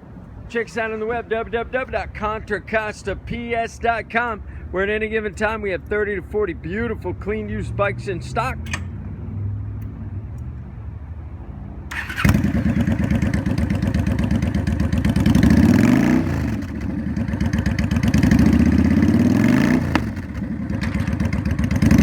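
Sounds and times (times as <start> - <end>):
motorcycle engine starting and revving: 11.9 - 22.0.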